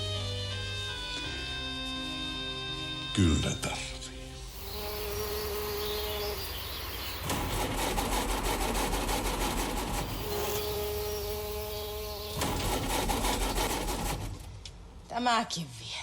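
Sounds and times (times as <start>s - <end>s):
buzzing hum and rasp: 4.2s - 15.0s.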